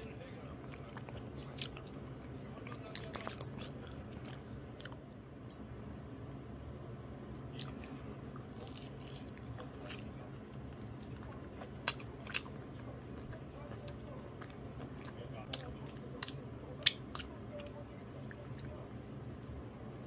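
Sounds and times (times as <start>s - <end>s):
person chewing: 0.0s - 5.6s, 6.4s - 19.6s
steady low hum: 0.0s - 20.0s
wet mouth clicks: 14.4s - 17.3s.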